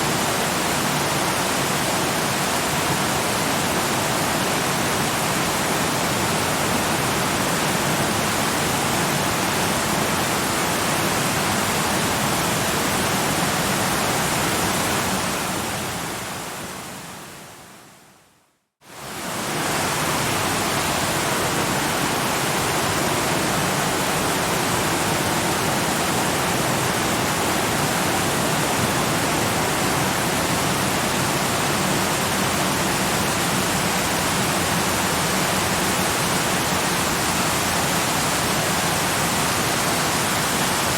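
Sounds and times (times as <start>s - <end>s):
waterfall rushing: 18.9s - 40.9s.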